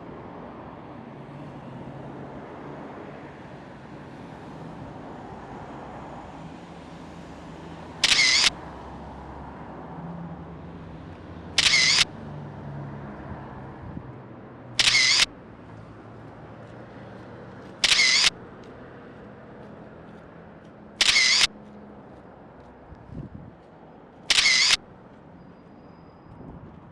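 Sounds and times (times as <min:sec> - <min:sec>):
camera shutter clicks: 0:08.0 - 0:08.6, 0:11.6 - 0:12.1, 0:14.8 - 0:15.3, 0:17.8 - 0:18.4, 0:21.0 - 0:21.6, 0:24.3 - 0:24.8.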